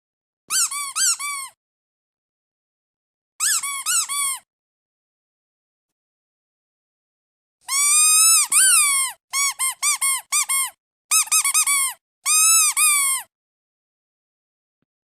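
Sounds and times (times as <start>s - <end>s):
squeaky duck toy squeaking: 0.5s - 1.6s, 3.4s - 4.5s, 7.7s - 13.3s.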